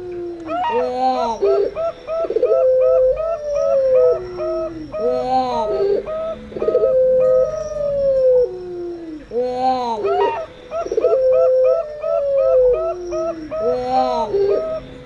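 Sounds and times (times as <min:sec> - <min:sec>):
doves cooing short repeated notes: 0:00.0 - 0:15.0
doves giving long howl-like coos: 0:00.0 - 0:15.0.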